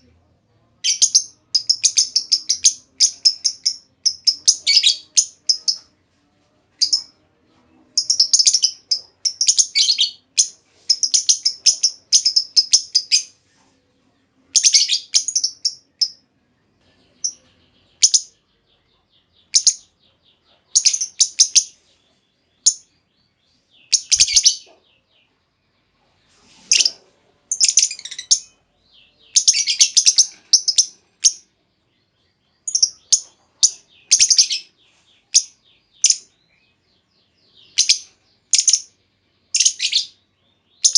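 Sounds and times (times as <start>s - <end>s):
lovebird chattering: 0.8s - 5.9s, 6.8s - 7.1s, 8.0s - 13.3s, 14.5s - 16.2s, 18.0s - 18.4s, 19.4s - 19.9s, 20.7s - 21.8s, 23.8s - 24.8s, 26.7s - 28.6s, 29.3s - 31.4s, 32.6s - 34.7s, 35.3s - 36.3s, 37.6s - 40.2s.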